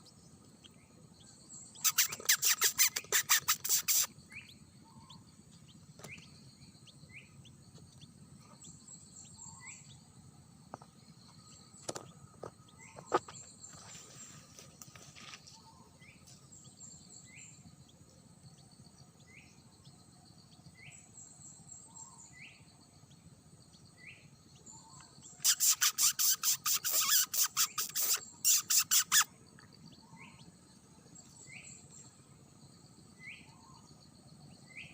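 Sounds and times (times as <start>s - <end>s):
bird rising chirp: 0.0s - 10.0s
high insect hum: 0.0s - 34.9s.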